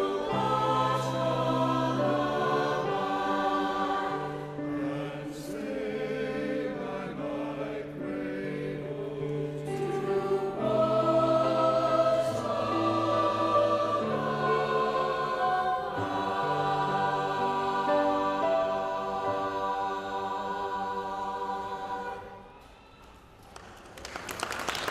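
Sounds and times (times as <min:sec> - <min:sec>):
choir singing long-held chords: 0:00.0 - 0:22.8.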